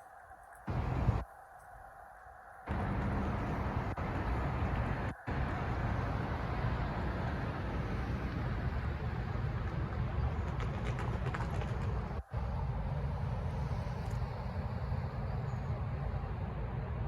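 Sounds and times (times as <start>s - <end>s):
freight cars rolling past: 2.7s - 14.0s.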